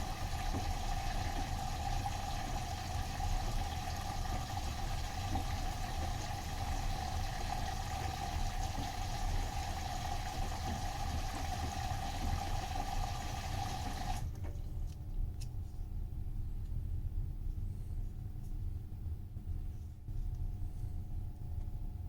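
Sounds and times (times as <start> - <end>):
water rushing into washing machine: 0.0 - 14.4.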